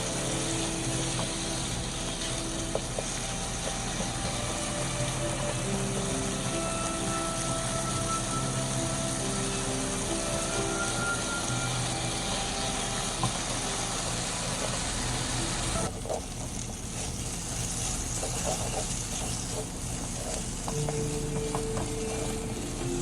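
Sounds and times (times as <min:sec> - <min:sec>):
food sizzling in a frying pan: 0:00.0 - 0:23.0
utensil stirring clicks: 0:12.8 - 0:23.0.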